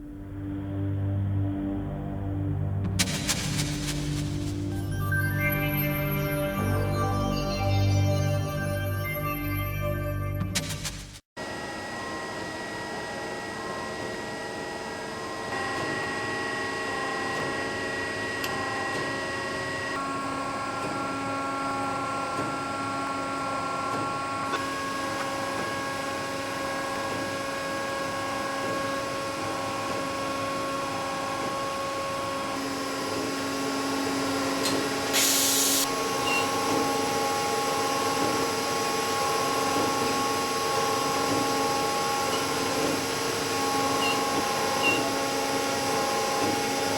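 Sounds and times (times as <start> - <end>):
lathe motor whines: 11.4 - 46.9
hiss of machining and coolant: 34.7 - 46.9.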